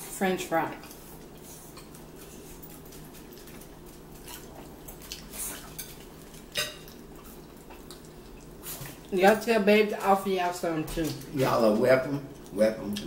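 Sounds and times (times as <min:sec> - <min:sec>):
steady low hum: 0:00.0 - 0:13.0
chewing and wet mouth smacks: 0:00.8 - 0:09.1.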